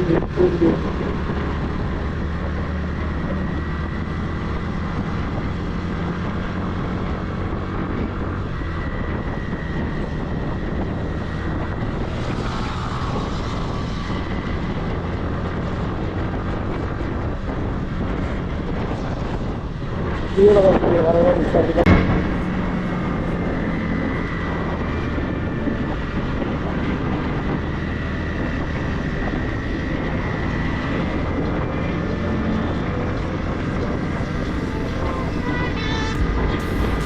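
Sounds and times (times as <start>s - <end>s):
wind and road noise: 0.0s - 37.0s
motorcycle engine cruising: 21.5s - 37.0s.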